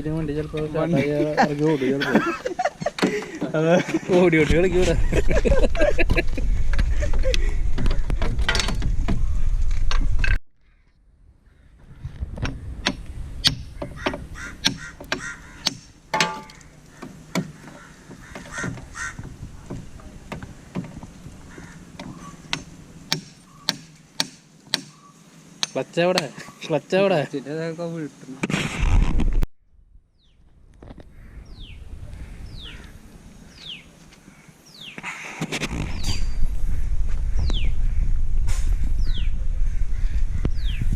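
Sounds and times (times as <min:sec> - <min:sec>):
metal clicks and knocks: 0:06.7 - 0:09.2, 0:12.4 - 0:21.0
bird whistling call: 0:24.9 - 0:25.2
low rumbling noise: 0:35.6 - 0:40.9.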